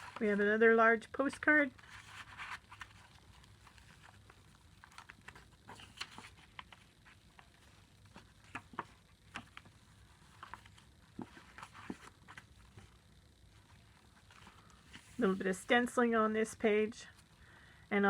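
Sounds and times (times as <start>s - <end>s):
paper pages rustling and tapping: 1.8s - 13.0s.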